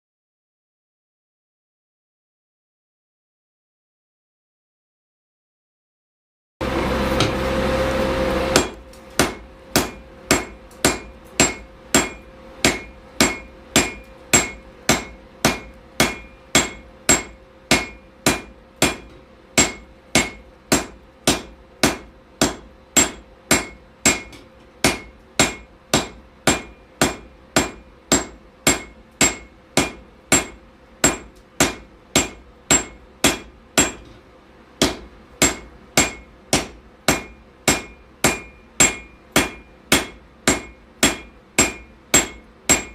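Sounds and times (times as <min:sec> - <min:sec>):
faint steady hum: 0:06.6 - 0:42.9
hammer striking steel on anvil: 0:07.2 - 0:07.4, 0:08.5 - 0:34.2, 0:34.8 - 0:42.9.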